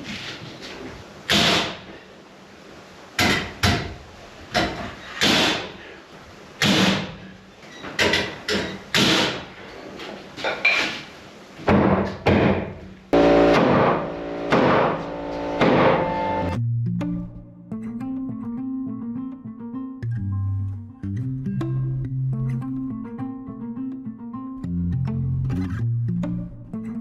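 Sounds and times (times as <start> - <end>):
hammer striking nails into wood: 1.3 - 1.8, 4.6 - 5.7, 6.6 - 7.1, 8.0 - 9.4, 13.5 - 16.0
music: 14.4 - 27.0.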